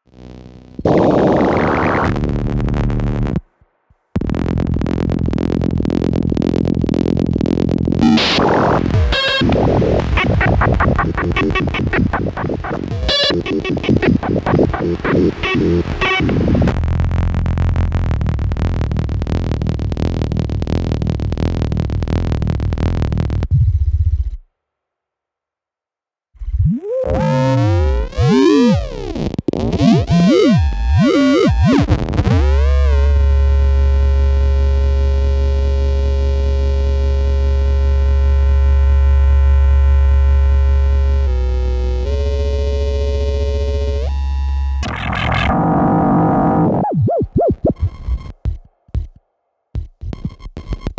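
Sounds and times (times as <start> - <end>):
glitchy electronic noise music: 0.2 - 3.4, 4.2 - 23.5, 26.6 - 33.6, 41.3 - 49.2, 49.8 - 50.9
synthesizer tones sweeping: 26.6 - 31.8, 44.8 - 48.4.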